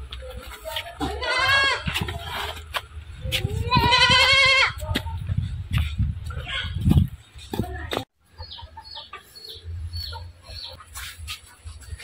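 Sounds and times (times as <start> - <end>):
birds chirping: 6.4 - 12.0.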